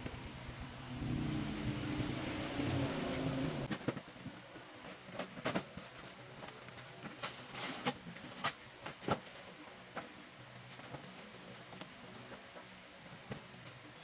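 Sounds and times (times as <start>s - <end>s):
car engine running: 0.0s - 3.7s.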